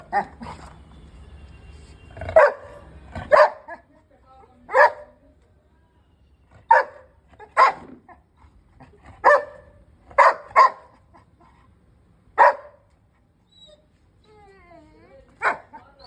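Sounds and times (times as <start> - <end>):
dog barking: 0.0 - 0.6, 2.2 - 3.9, 4.7 - 5.2, 6.6 - 8.2, 9.2 - 11.0, 12.4 - 12.9, 15.4 - 15.9.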